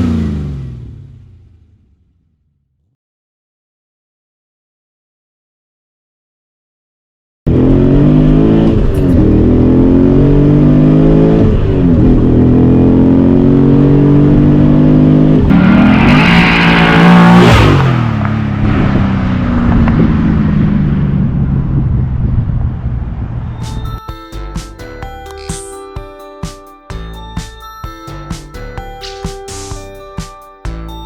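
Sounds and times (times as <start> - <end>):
car engine accelerating: 0.0 - 2.2, 7.5 - 25.8.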